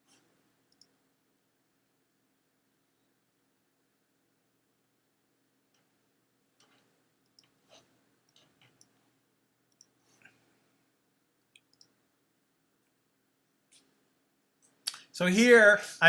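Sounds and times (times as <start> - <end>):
faint computer mouse clicks: 0.1 - 0.9, 6.6 - 9.0, 9.7 - 10.0, 11.6 - 12.0.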